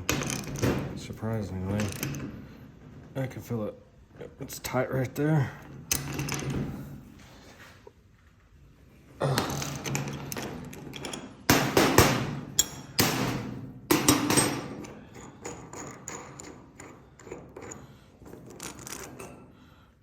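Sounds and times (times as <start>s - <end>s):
loud sharp knocks: 11.5s - 12.4s.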